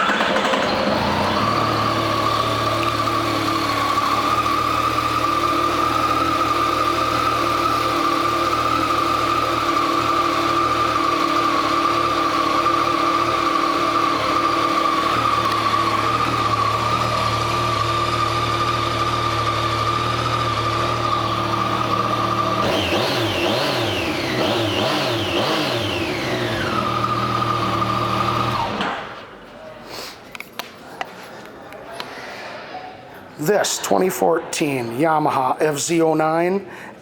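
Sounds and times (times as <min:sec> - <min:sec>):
motorcycle engine idling: 0:00.0 - 0:28.6.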